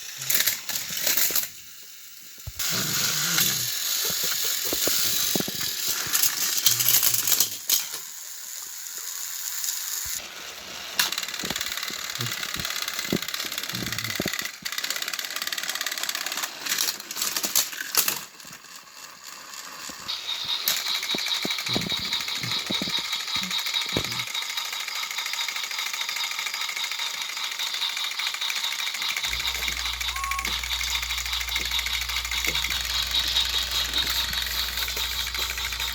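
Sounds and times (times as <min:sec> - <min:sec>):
toy train engines whirring: 0:00.0 - 0:35.9
steady high whine: 0:29.2 - 0:35.9.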